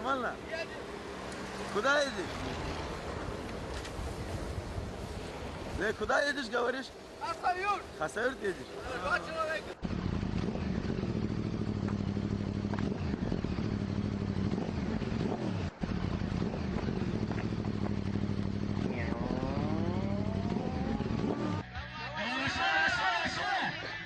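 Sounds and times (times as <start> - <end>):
engine running: 9.4 - 21.6.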